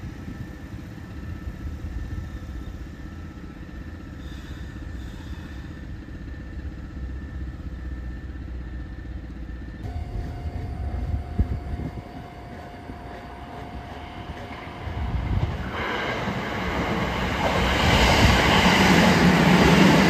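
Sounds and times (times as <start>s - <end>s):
faint steady whine: 0.0s - 15.7s
electric train rumbling: 0.0s - 20.0s.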